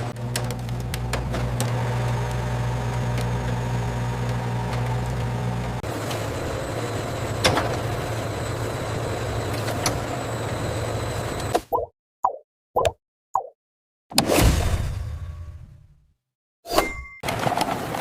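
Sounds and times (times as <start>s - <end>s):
factory machinery humming: 0.0s - 11.5s.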